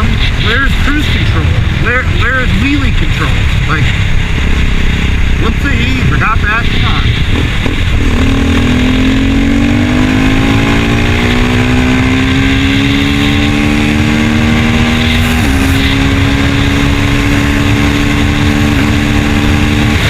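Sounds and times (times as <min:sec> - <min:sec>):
wind rumbling on microphone: 0:00.0 - 0:11.6.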